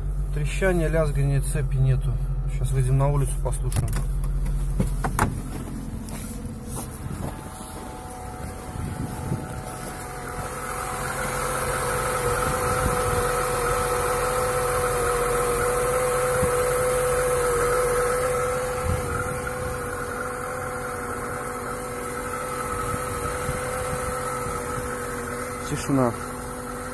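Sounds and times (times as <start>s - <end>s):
car engine idling: 0.0s - 26.9s
engine knocks: 3.2s - 14.5s.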